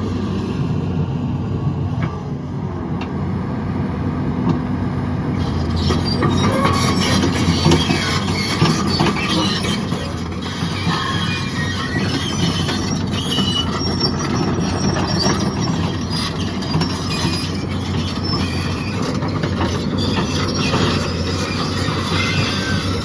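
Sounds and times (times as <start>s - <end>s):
diesel excavator running under load: 0.0s - 23.0s
metal-on-metal squeals: 5.4s - 23.0s.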